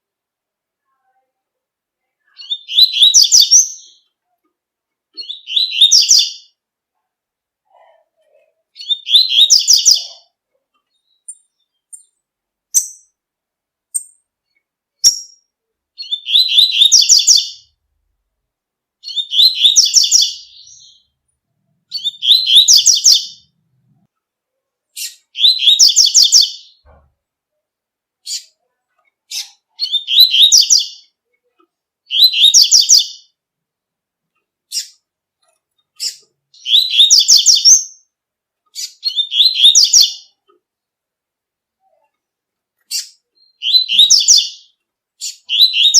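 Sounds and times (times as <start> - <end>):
bird twittering song: 2.4 - 4.2, 5.2 - 6.6, 8.8 - 13.2, 13.9 - 17.7, 19.0 - 21.2, 21.9 - 23.5, 25.0 - 26.9, 29.3 - 31.2, 32.1 - 33.4, 35.9 - 38.1, 38.7 - 40.4, 42.8 - 45.9.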